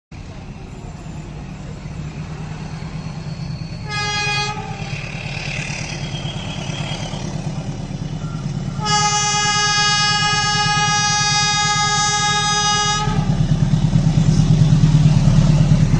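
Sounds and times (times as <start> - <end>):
train rumbling: 0.1 - 15.9
train horn blasting: 3.7 - 5.3, 8.6 - 13.4.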